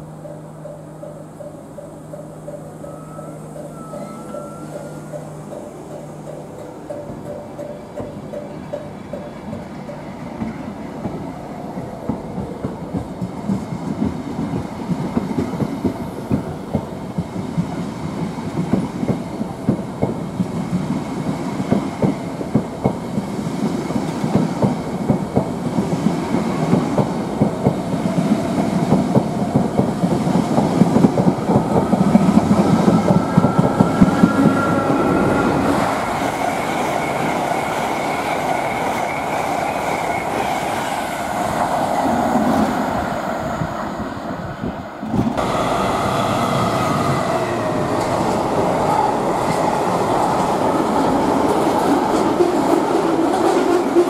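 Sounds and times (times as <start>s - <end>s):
wheels clicking over rail joints: 0.2s - 41.7s.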